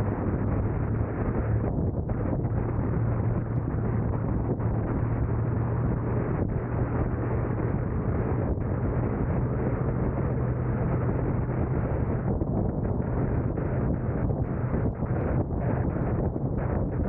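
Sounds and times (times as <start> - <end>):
car road and wind noise: 0.0 - 17.0
wind on microphone: 0.0 - 17.0.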